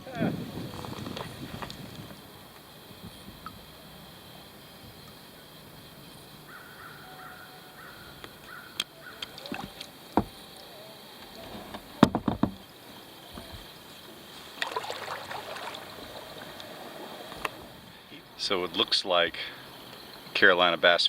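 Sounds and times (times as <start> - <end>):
paddle splashing water: 8.5 - 10.6, 14.2 - 17.8
paddle knocking kayak hull: 9.1 - 10.5, 11.2 - 12.7.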